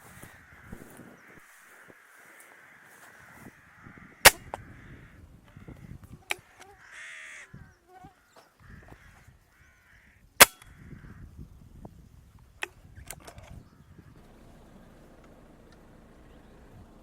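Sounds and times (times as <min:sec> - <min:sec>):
crows cawing: 0:00.0 - 0:11.4
air rifle firing: 0:04.2 - 0:04.6.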